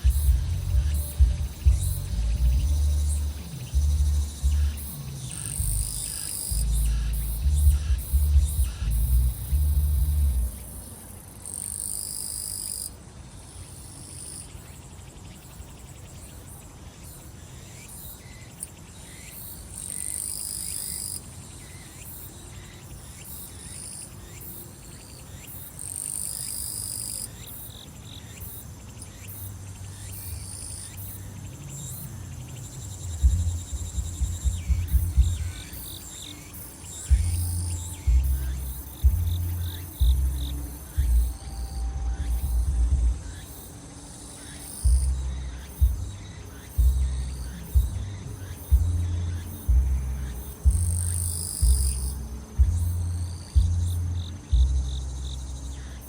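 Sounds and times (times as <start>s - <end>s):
low thumping music beat: 0.0s - 10.7s, 33.0s - 36.1s, 36.8s - 43.5s, 44.8s - 55.9s
insects trilling: 0.0s - 56.0s.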